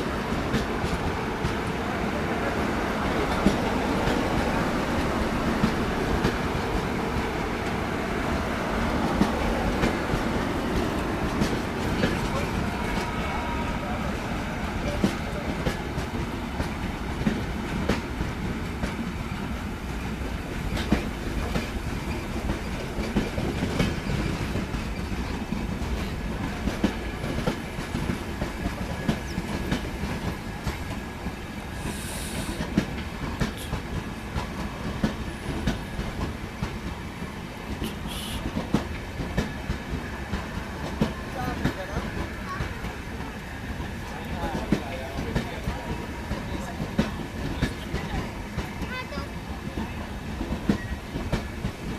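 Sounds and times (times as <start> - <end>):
train rumbling: 0.0 - 51.9
train wheels clacking over joints: 0.0 - 51.9
short hisses: 31.8 - 32.7.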